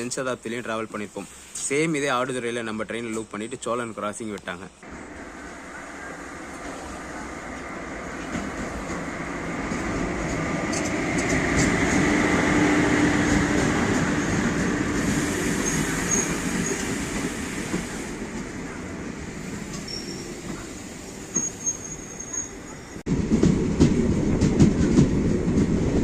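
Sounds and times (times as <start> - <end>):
train rumbling on rails: 4.8 - 26.0
faint high wheel squeals: 15.6 - 16.9, 19.6 - 23.0.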